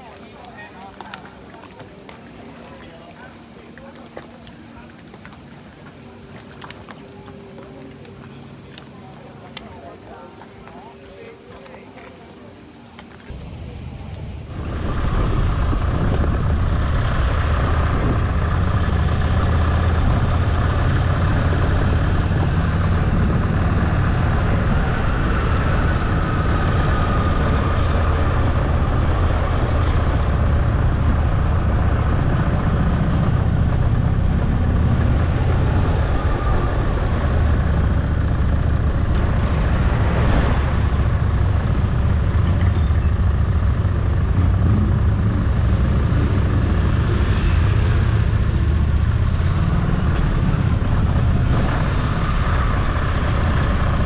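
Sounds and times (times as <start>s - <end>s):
wind and road noise: 12.4s - 54.0s
motorcycle engine running: 13.4s - 54.0s.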